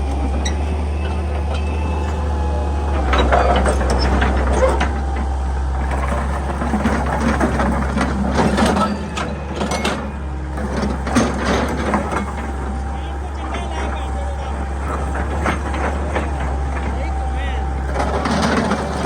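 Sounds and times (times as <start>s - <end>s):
diesel engine running: 0.0s - 19.0s
bucket crunching earth and rock: 1.9s - 9.6s.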